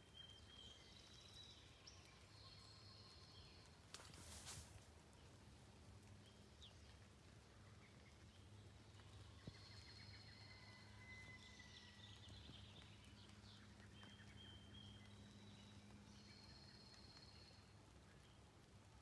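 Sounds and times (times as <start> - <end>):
low steady hum: 0.0 - 19.0
birdsong whistles and trills: 7.6 - 18.4.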